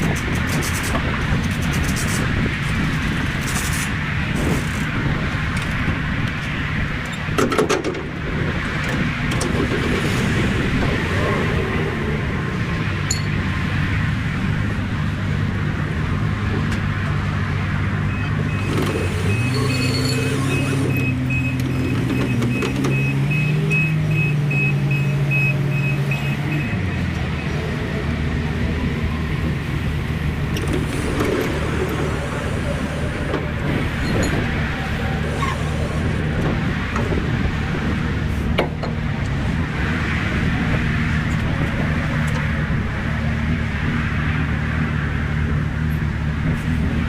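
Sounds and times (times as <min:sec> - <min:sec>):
truck engine and road noise: 0:00.0 - 0:47.0
truck diesel engine running: 0:17.8 - 0:39.8
high beeps: 0:18.1 - 0:26.8.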